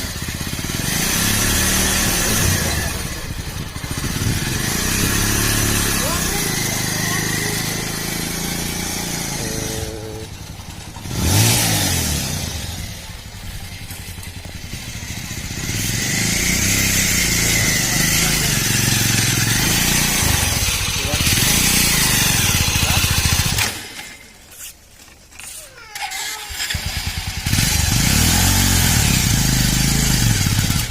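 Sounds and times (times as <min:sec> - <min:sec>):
small motorcycle engine revving: 0:00.0 - 0:24.3, 0:25.4 - 0:30.9.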